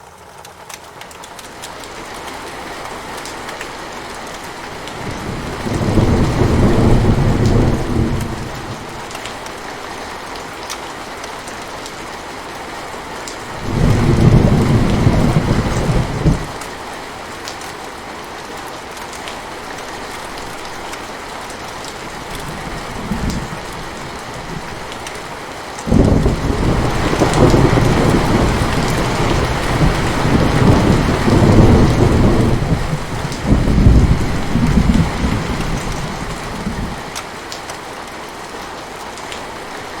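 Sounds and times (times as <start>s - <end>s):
steady rain: 0.0s - 40.0s
rolling thunder: 5.0s - 9.0s, 13.5s - 16.6s, 22.3s - 25.0s, 25.9s - 37.1s.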